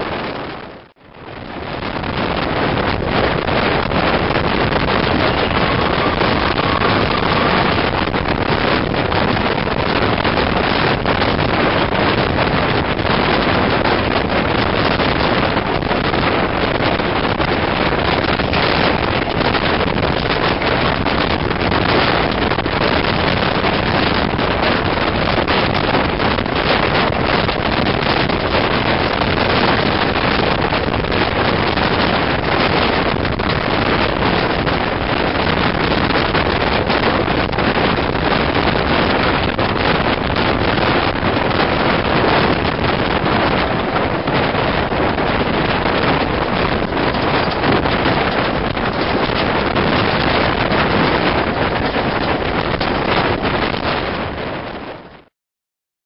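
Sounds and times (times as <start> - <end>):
wind buffeting microphone: 0.0 - 55.3
train coaches running on track: 3.2 - 14.2.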